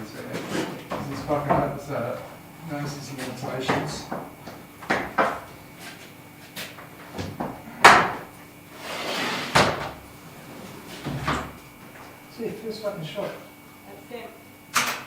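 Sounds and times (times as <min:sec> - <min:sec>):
sliding door knocks and bangs: 0:03.6 - 0:05.5, 0:09.2 - 0:10.0, 0:11.0 - 0:11.6.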